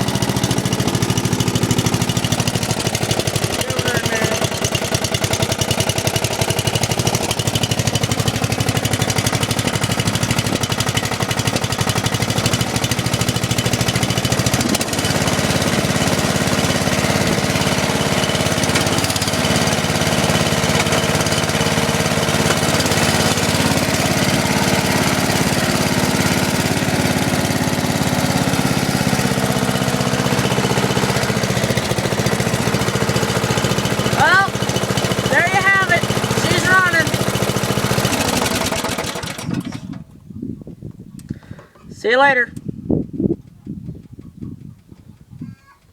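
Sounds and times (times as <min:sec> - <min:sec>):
lawn mower engine running: 0:00.0 - 0:40.4.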